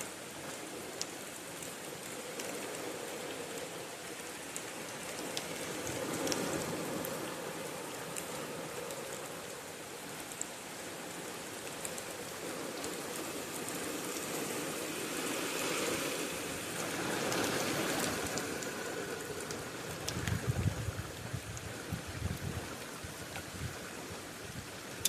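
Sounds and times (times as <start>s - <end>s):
steady rain falling: 0.0s - 25.0s
low gusting rumble: 16.4s - 24.8s.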